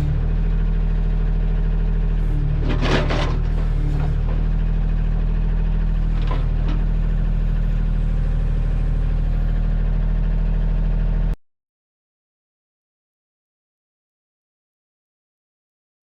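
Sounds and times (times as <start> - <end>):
backhoe working: 0.0 - 11.4
tractor diesel engine running: 0.0 - 11.4.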